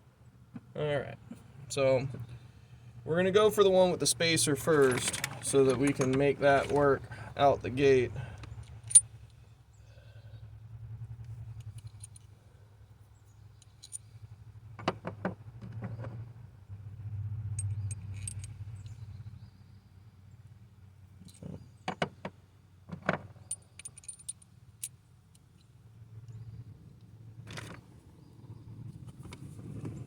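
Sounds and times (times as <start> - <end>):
metal tools clinking: 4.6 - 9.1, 17.6 - 18.6, 23.5 - 24.5.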